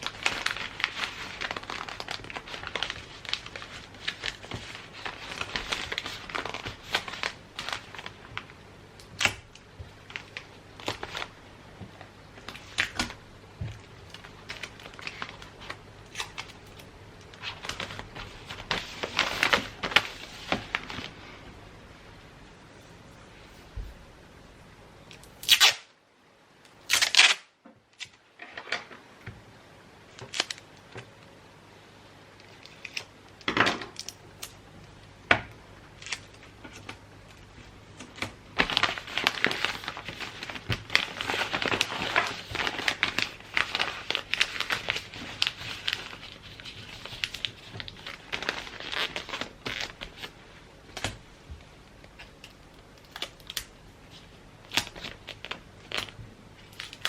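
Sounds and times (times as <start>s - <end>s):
wrapping paper tearing: 0.0s - 8.5s, 14.0s - 21.2s, 25.4s - 25.9s, 26.8s - 28.7s, 30.2s - 30.7s, 37.9s - 50.4s, 52.2s - 57.0s
paper crinkling: 0.0s - 21.4s, 30.1s - 31.0s, 36.0s - 57.0s.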